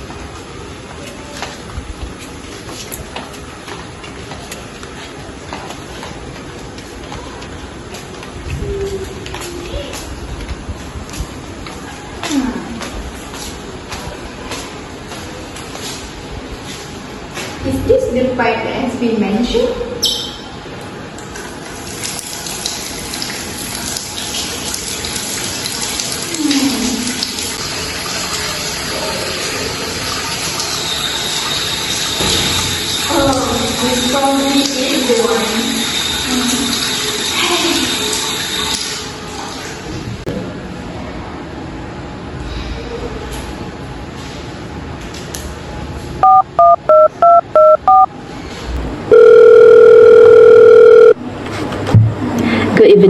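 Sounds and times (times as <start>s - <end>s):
water running: 21.3s - 40.2s
telephone ringback tone: 46.2s - 48.1s, 49.1s - 51.2s
touch-tone keypad beeps: 46.2s - 48.1s, 49.1s - 51.2s.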